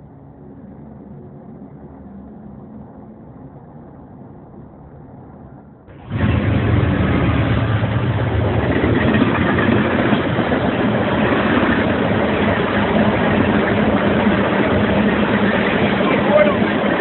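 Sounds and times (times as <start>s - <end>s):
diesel locomotive drone: 0.0s - 17.0s
steel wheels on rails: 5.9s - 17.0s.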